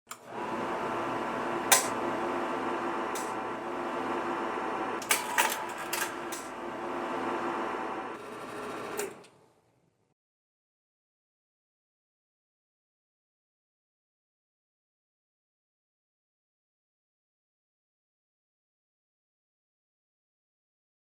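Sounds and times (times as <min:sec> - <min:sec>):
projector fan hum: 0:00.1 - 0:09.4.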